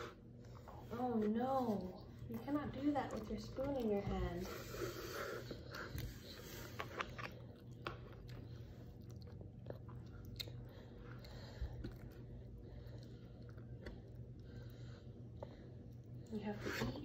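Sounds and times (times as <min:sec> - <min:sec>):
toddler chewing: 0:01.7 - 0:14.7.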